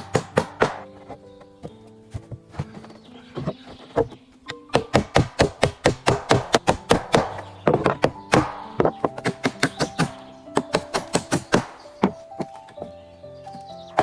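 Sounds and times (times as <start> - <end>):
background music with held notes: 0.0 - 14.0.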